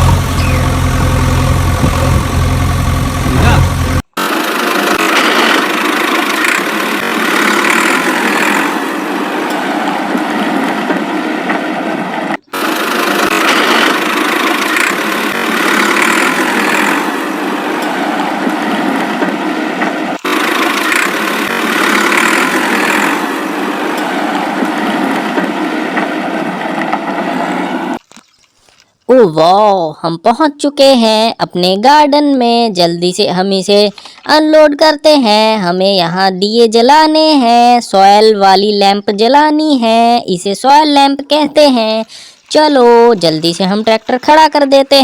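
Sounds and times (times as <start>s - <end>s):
tractor engine idling: 0.0s - 11.6s, 12.4s - 28.0s, 41.3s - 45.0s.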